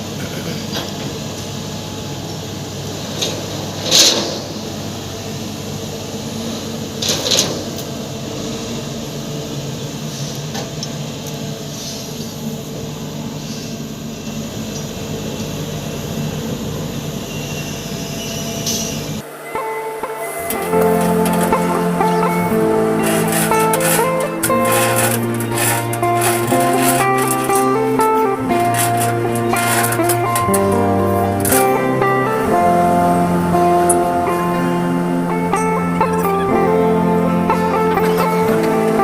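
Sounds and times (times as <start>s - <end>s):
heavy machinery engine running: 19.2s - 39.0s.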